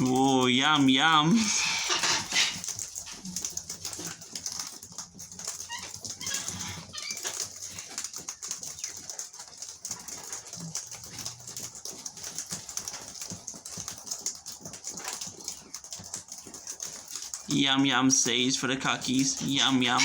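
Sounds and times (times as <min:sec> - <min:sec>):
birds chirping: 0:14.0 - 0:20.0.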